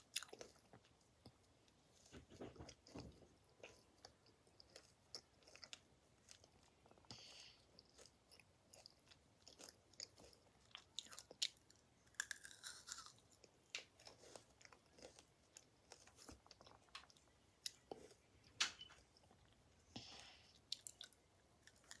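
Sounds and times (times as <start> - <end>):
chewing crunches: 7.8 - 13.4, 20.7 - 22.0.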